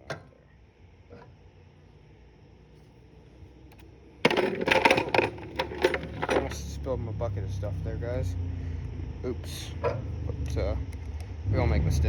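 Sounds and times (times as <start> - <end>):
metal parts clattering in bucket: 4.2 - 6.7.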